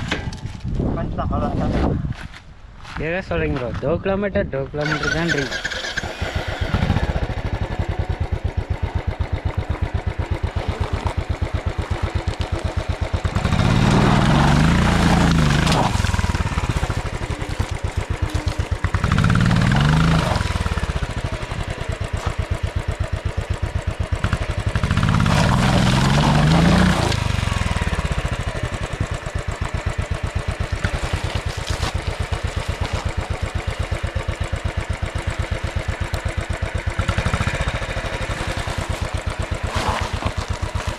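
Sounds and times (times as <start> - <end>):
motorcycle engine revving: 4.8 - 40.9.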